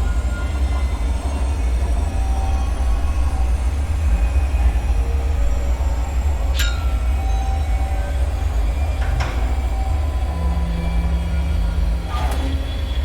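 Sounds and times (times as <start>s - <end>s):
deep rumbling drone: 0.0s - 13.0s
sharp ringing clinks: 6.6s - 7.2s.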